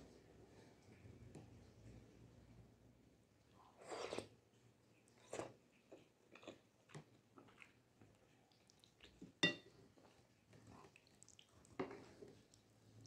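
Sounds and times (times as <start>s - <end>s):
chewing noodles: 3.6s - 9.4s, 10.0s - 13.0s.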